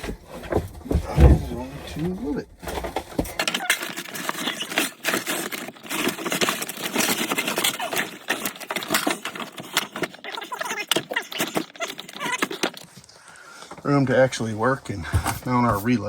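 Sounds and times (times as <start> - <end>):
items moved by hand: 0.0 - 16.0.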